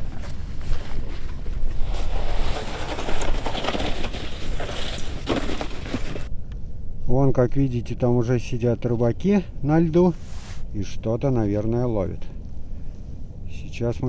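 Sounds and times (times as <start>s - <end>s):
short crunching sounds: 0.0s - 6.3s.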